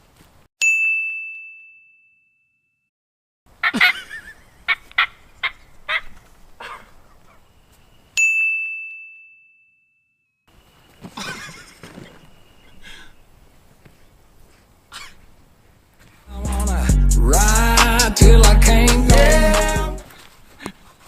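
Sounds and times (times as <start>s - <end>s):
bell-like ding: 0.6s - 2.8s, 8.2s - 10.2s
turkey yelping calls: 4.6s - 7.4s.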